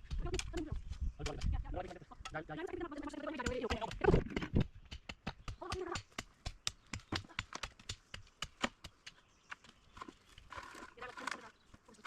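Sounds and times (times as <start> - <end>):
hand tools clicking and knocking: 3.3 - 11.5.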